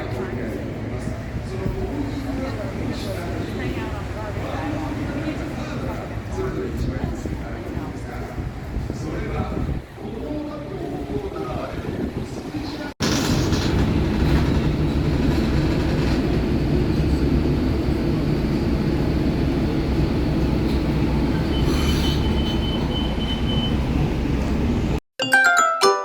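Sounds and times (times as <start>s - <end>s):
vehicle rumbling: 11.2s - 25.0s
thin high squeal: 21.5s - 23.4s.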